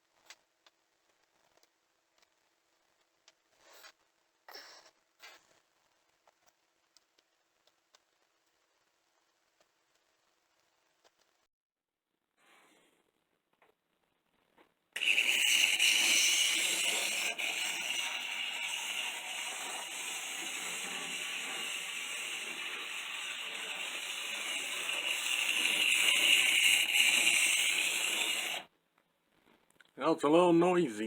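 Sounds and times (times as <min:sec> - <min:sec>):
model train motor whirring: 0:15.0 - 0:28.7.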